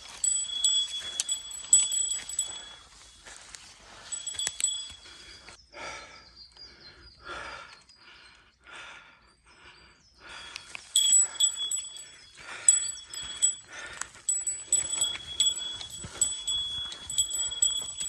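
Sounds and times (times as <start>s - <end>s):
small metal bell jingling: 0.0s - 5.3s, 10.9s - 18.0s.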